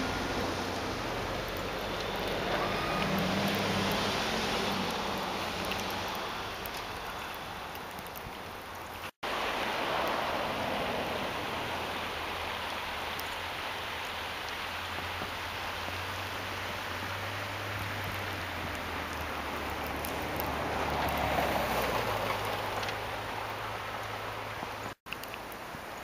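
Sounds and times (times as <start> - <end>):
snowstorm hiss: 0.0 - 26.0.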